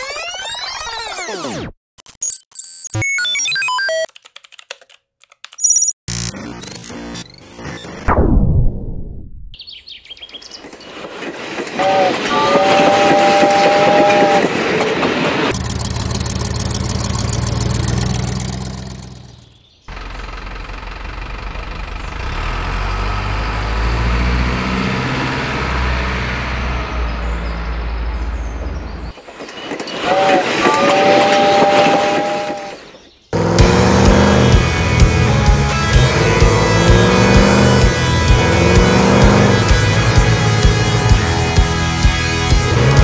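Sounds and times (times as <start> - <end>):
low rumble of running train: 10.5 - 18.2, 26.6 - 33.0
two-note train horn: 11.8 - 14.6, 30.0 - 32.8.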